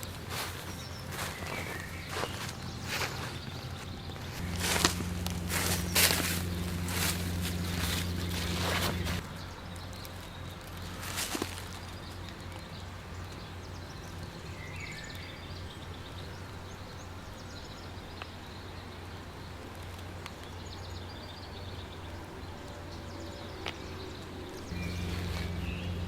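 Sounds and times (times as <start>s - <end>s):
bird chirps and trills: 0.0s - 10.6s, 23.1s - 26.0s
low background rumble: 0.8s - 10.5s, 24.6s - 26.0s.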